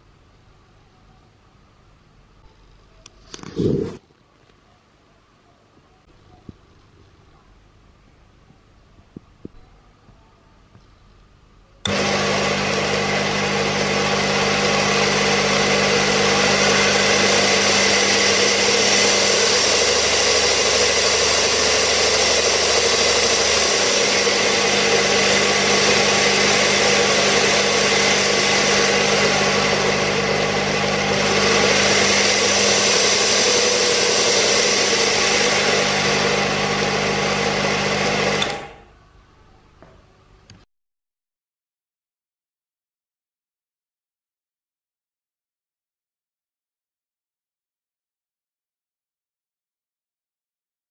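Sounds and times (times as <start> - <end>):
grinding machine running: 11.8 - 38.8.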